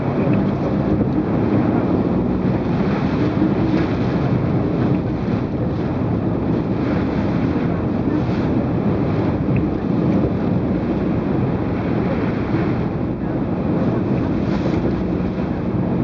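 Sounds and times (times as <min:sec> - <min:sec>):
strong wind on microphone: 0:00.0 - 0:16.0.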